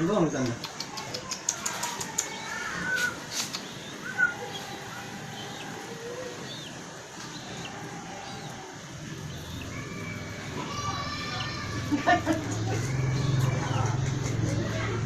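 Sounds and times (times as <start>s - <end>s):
sharp clicks: 0.4s - 2.7s
chick peeping: 0.5s - 12.0s.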